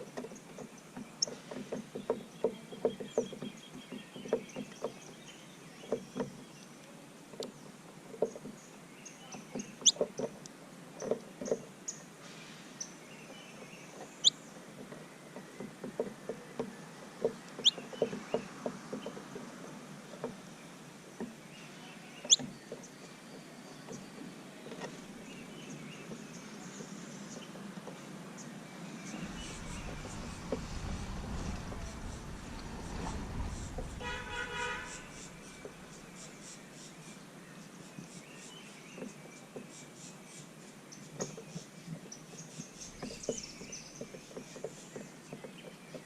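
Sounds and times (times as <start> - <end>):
faint high bird chirps: 21.6 - 24.1.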